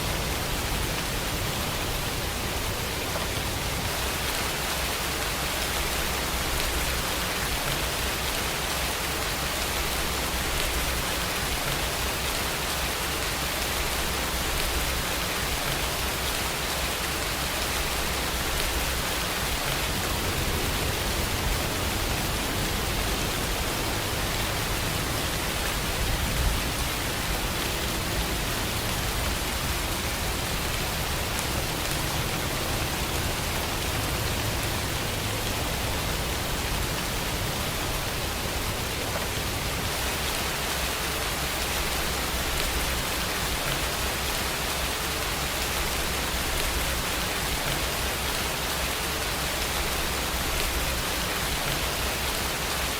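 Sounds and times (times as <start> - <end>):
steady rain: 0.0 - 52.9.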